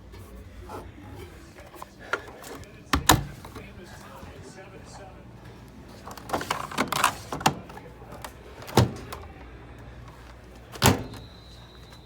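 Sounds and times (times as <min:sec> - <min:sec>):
washing machines humming: 0:00.0 - 0:12.0
faint high beep: 0:11.1 - 0:12.0.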